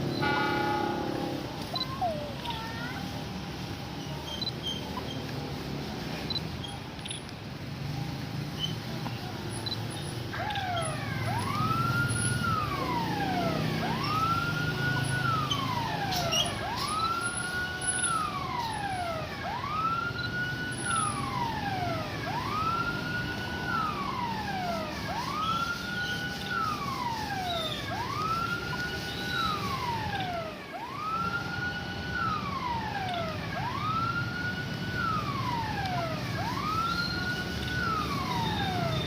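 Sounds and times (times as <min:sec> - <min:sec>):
wailing siren: 0:01.6 - 0:02.6, 0:10.3 - 0:39.0.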